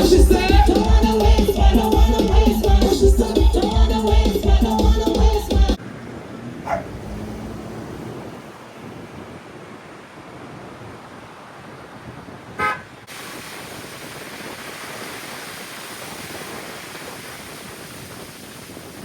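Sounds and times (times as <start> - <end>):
short vehicle horn toot: 12.6 - 12.9.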